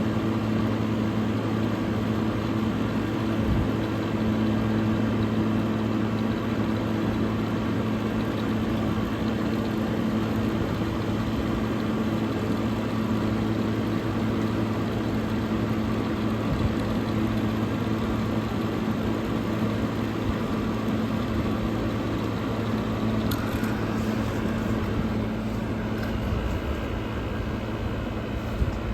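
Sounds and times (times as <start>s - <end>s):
air conditioner humming: 0.0s - 28.9s.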